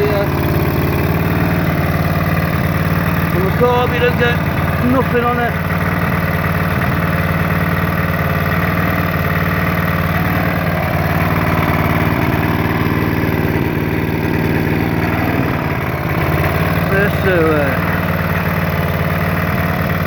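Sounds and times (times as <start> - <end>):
generator engine running: 0.0 - 20.0.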